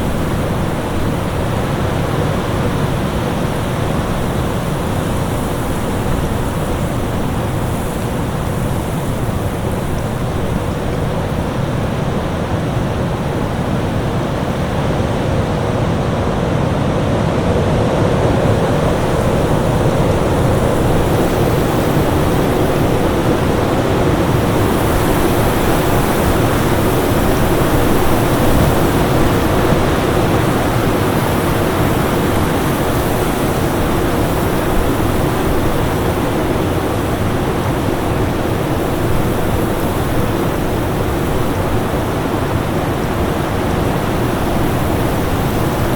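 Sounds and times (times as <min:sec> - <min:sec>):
storm wind blowing: 0:00.0 - 0:45.9.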